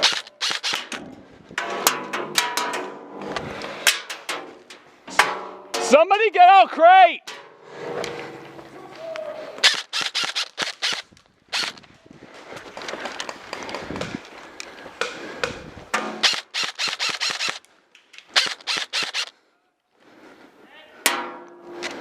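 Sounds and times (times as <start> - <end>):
airsoft guns firing: 0.0 - 1.0, 9.6 - 11.8, 15.0 - 17.6, 18.3 - 19.3.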